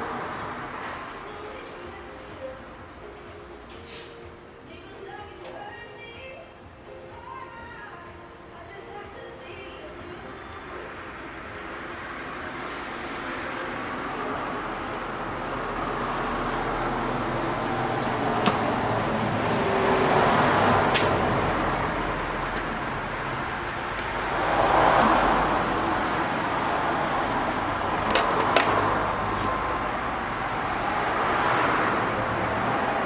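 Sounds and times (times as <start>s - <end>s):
road traffic passing: 0.0s - 33.0s
sharp clicks and knocks: 28.0s - 29.0s.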